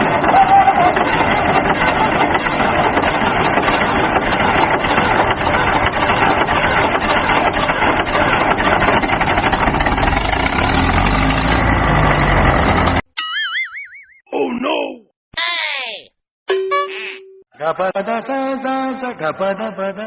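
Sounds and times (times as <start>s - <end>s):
vehicle engine rattling: 0.0s - 13.0s.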